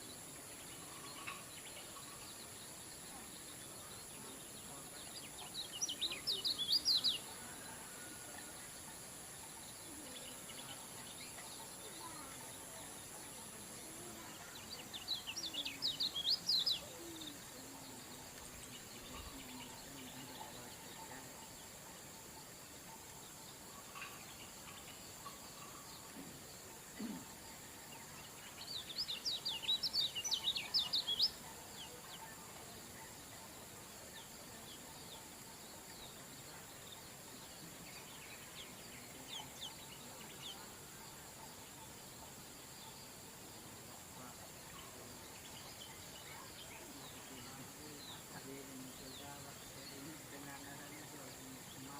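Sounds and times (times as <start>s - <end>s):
steady hiss: 0.0s - 51.9s.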